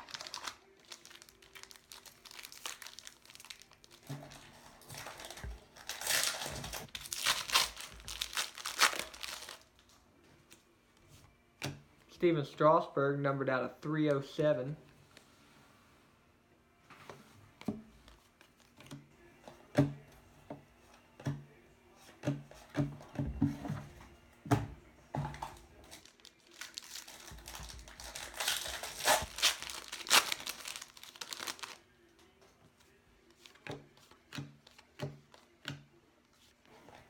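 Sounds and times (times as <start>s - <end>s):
wrapper tearing and crinkling: 0.0s - 9.8s, 25.9s - 31.8s
cards clicking and tapping: 33.4s - 35.9s.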